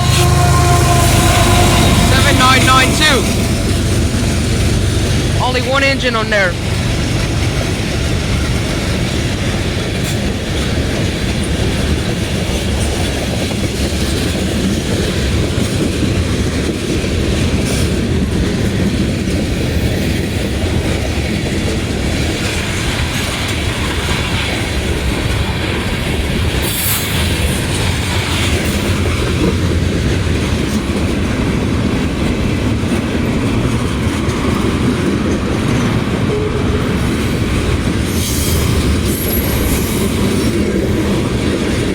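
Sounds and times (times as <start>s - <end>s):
freight train wheels rumbling on rails: 0.0s - 41.9s.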